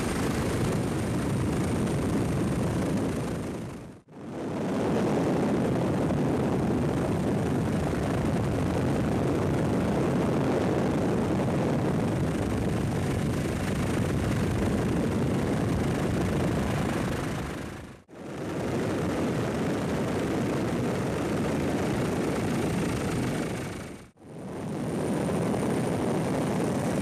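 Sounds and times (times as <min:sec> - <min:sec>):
helicopter engine and rotor noise: 0:00.0 - 0:27.0.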